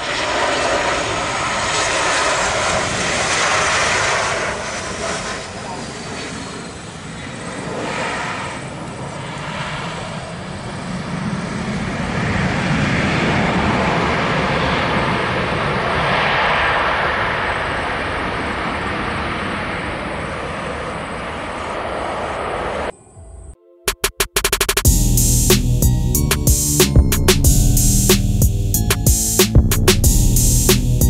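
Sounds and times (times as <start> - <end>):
airliner engines roaring: 0.0 - 23.3.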